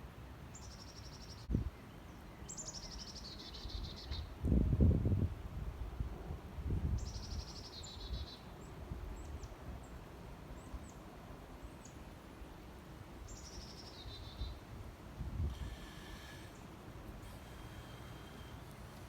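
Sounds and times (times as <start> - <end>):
wind on microphone: 4.2 - 7.4.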